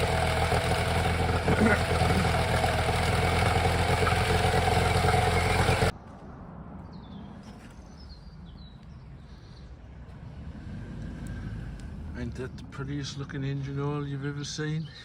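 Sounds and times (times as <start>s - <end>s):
outboard motor idling: 0.0s - 5.9s.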